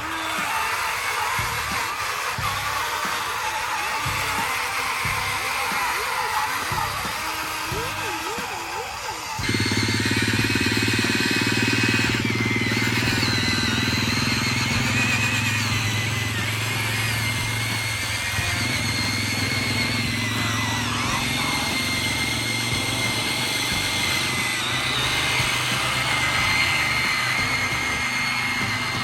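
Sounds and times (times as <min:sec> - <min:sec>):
electric motors whining: 0:00.0 - 0:29.0
low hum: 0:09.4 - 0:29.0.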